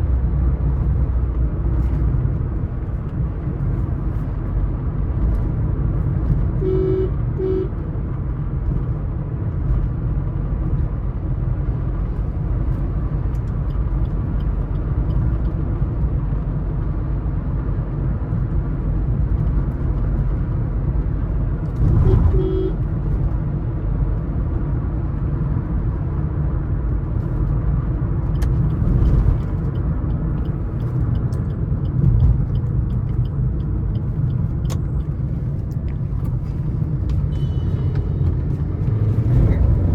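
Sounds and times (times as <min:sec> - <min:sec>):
car engine and road rumble: 0:00.0 - 0:39.9
car horn double honks: 0:06.6 - 0:07.7, 0:22.0 - 0:22.8.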